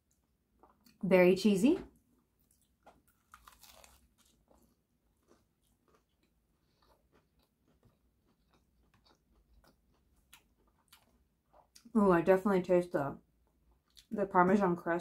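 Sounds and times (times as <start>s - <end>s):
biting and chewing sandwich: 2.4s - 11.7s.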